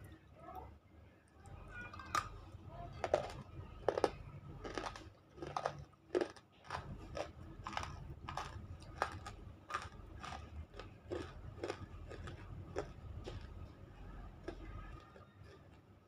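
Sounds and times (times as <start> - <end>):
close-up chewing with wet crunches: 3.0 - 13.7.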